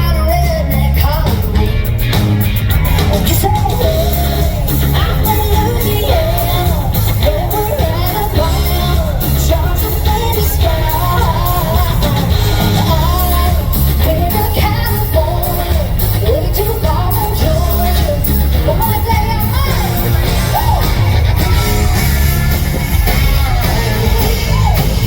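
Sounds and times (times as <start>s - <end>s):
lead vocalist singing: 0.0s - 25.0s
live country band playing: 0.0s - 25.0s.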